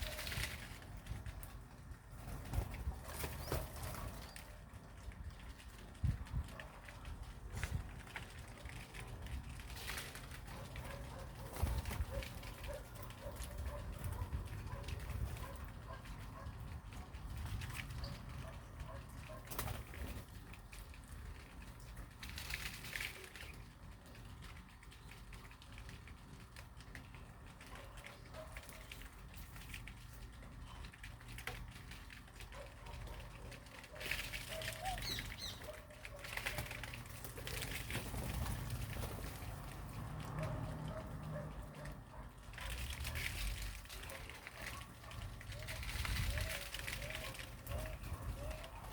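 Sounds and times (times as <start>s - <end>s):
bird wings flapping: 0.0s - 4.6s, 6.6s - 15.7s, 19.1s - 20.8s, 33.0s - 40.6s, 42.6s - 48.9s
faint bird calls: 34.5s - 36.0s.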